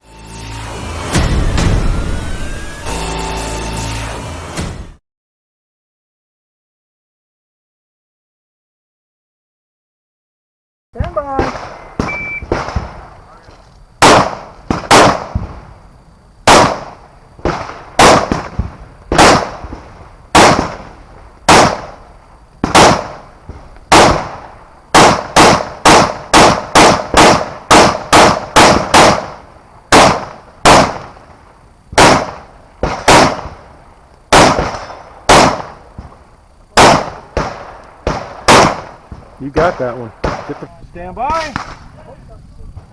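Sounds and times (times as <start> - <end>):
rifle shots echoing: 11.1 - 15.7, 16.4 - 42.0.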